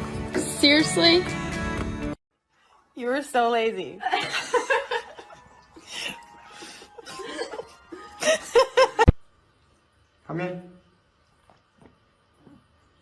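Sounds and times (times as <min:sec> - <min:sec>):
background music: 0:00.0 - 0:02.2, 0:04.9 - 0:09.0
person laughing: 0:04.2 - 0:09.2.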